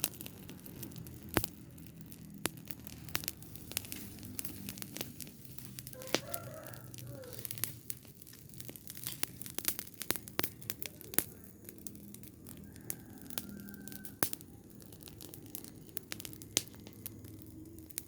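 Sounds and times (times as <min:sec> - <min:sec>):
burning rubbish crackling: 0:00.0 - 0:18.0
sharp pops and snaps: 0:00.0 - 0:18.0.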